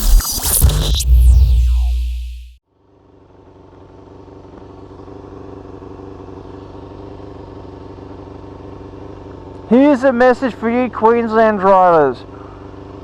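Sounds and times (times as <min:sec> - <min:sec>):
electronic intro music: 0:00.0 - 0:02.6
motorcycle engine running steadily: 0:02.7 - 0:13.0.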